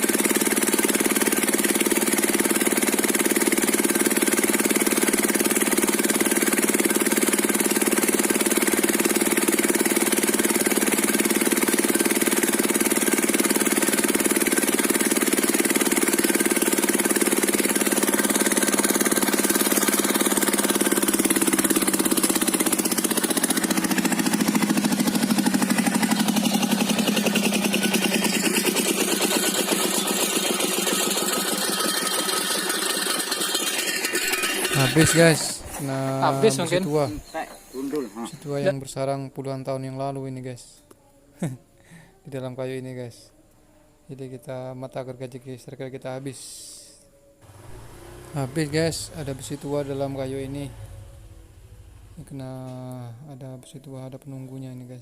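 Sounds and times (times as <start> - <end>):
diesel engine running: 0.0 - 38.7, 47.4 - 52.7
circular saw whine: 12.2 - 38.7, 46.9 - 55.0.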